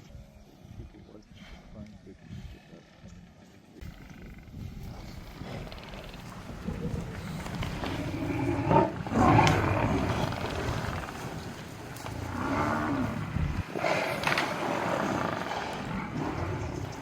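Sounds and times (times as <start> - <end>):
lions growling: 3.8 - 17.0.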